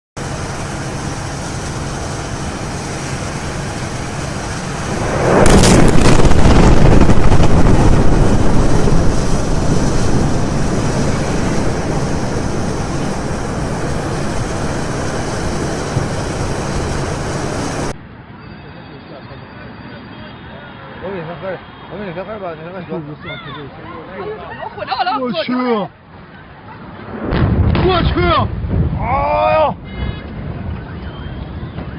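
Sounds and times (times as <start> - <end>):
huge explosion with rolling rumble: 0.2 - 18.0, 26.9 - 30.8
steady background noise: 0.2 - 31.9.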